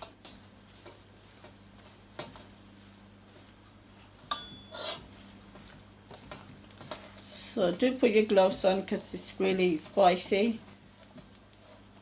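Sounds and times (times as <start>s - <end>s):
utensil scraping bowl: 4.6s - 12.0s.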